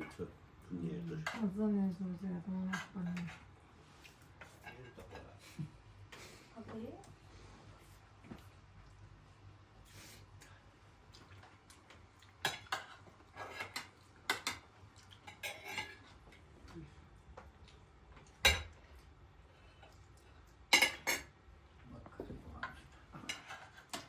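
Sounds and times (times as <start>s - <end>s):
cutlery and dishes clinking: 12.4s - 16.2s, 18.3s - 18.8s, 20.7s - 21.4s, 22.6s - 24.0s.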